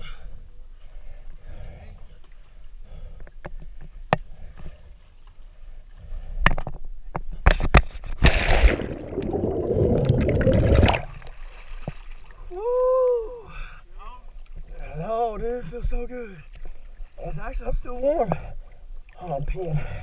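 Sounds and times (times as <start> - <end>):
loud splash: 8.2 - 12.0
water rushing and bubbling: 8.2 - 12.0.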